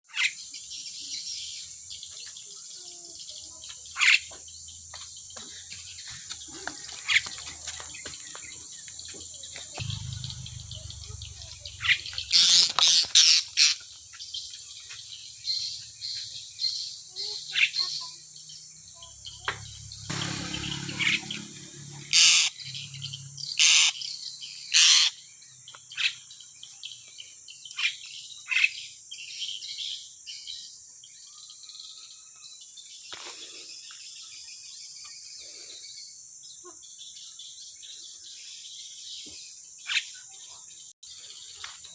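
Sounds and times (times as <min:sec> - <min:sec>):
bird chirping: 0:00.0 - 0:41.9
high-pitched insect drone: 0:09.1 - 0:13.8, 0:18.9 - 0:24.1.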